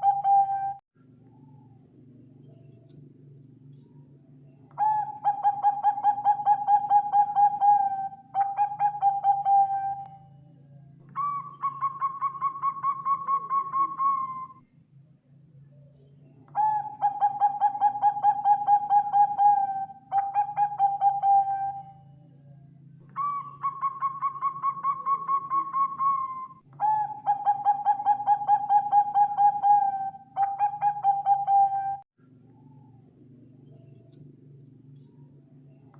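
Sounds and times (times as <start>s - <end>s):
dove cooing: 0.0s - 0.8s, 4.8s - 10.4s, 11.1s - 14.6s, 16.5s - 32.0s
faint low hum: 0.0s - 35.9s.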